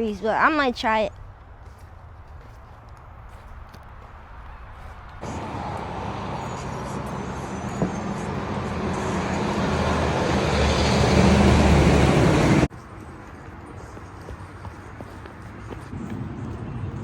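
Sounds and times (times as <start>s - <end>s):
road traffic noise: 0.0s - 17.0s
low engine hum: 5.2s - 12.7s.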